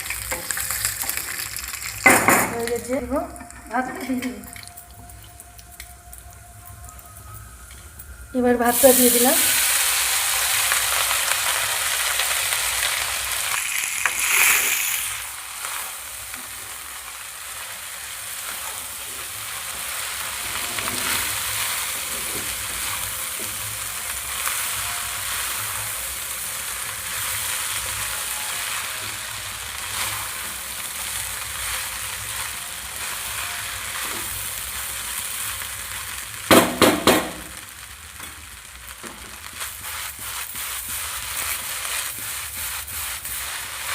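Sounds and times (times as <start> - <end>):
rice sizzling in hot oil: 0.0 - 43.9
spoon scraping a pan: 26.9 - 34.8, 39.1 - 43.9.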